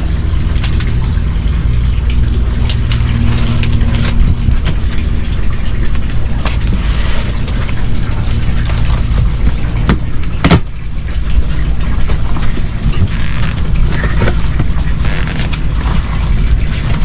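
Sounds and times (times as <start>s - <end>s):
low rumble: 0.0s - 17.0s
cardboard rustling and scraping: 6.4s - 7.7s, 12.9s - 17.0s.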